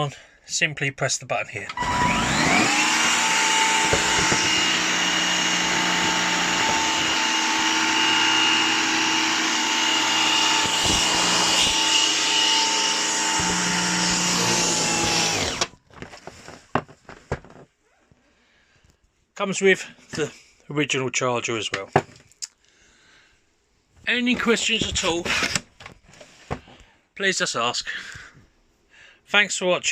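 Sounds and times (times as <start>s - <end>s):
vacuum cleaner motor whine: 1.7s - 15.8s.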